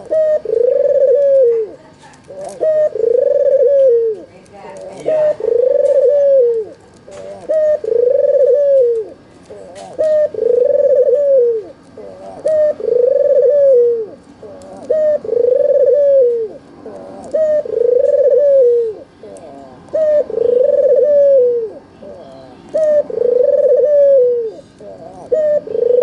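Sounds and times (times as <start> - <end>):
dove cooing: 0.0 - 26.0.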